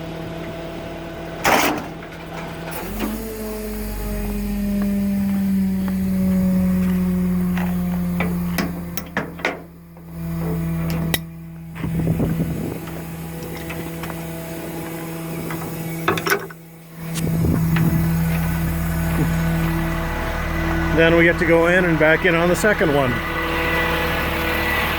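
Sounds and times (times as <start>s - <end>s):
diesel truck engine running: 0.0s - 24.9s
metallic clanks and rattles: 6.8s - 14.2s, 15.4s - 16.6s.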